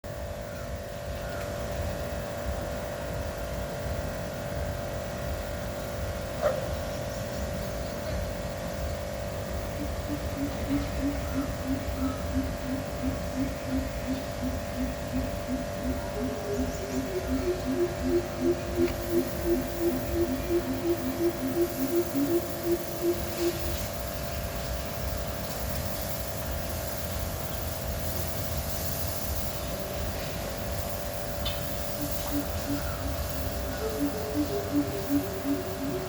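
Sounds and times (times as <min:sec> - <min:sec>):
steady hum and low rumble: 0:00.0 - 0:36.0
bird calling deep hoots: 0:09.6 - 0:24.0, 0:31.4 - 0:36.0.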